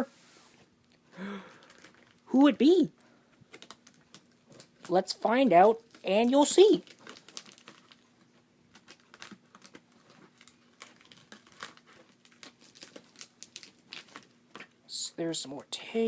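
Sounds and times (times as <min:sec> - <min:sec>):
packaging crinkling: 0:01.4 - 0:02.3, 0:03.3 - 0:14.8.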